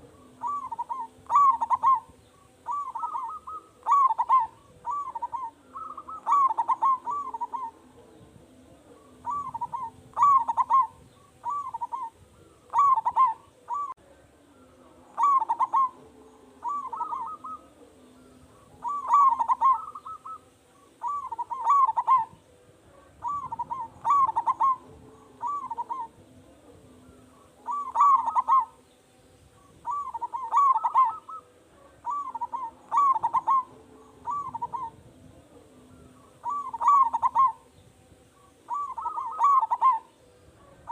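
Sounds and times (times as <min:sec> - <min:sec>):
dove cooing: 0:00.0 - 0:28.9, 0:29.5 - 0:40.9
faint steady hum: 0:00.0 - 0:40.9.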